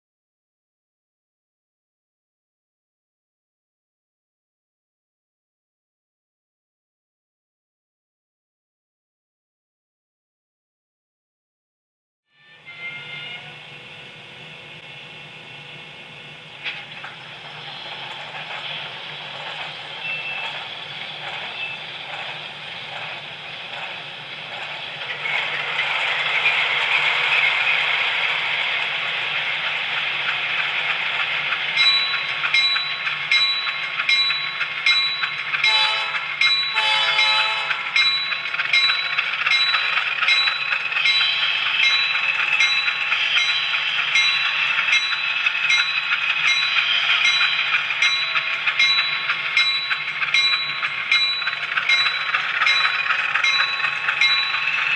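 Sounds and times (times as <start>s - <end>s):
short train horn: 12.4s - 13.8s, 35.6s - 37.9s
model train whirring: 12.4s - 54.9s
track clicks: 14.1s - 36.8s, 37.6s - 54.9s.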